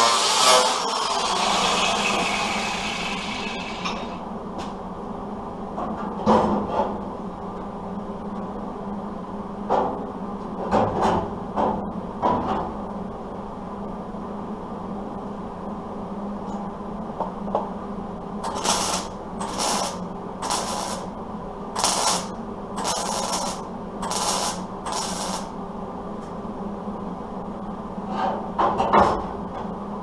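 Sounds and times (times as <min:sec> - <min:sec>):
power tool cutting sheet metal: 0:00.0 - 0:04.0, 0:21.8 - 0:25.5
low machine hum: 0:00.4 - 0:30.0.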